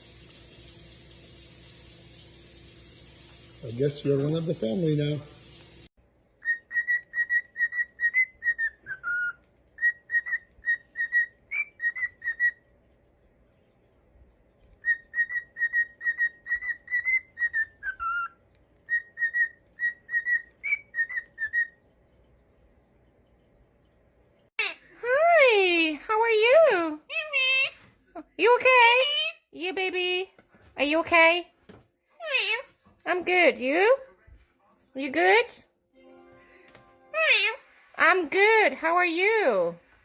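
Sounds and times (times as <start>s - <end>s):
parrot whistling tune: 6.4s - 12.6s, 14.8s - 21.8s.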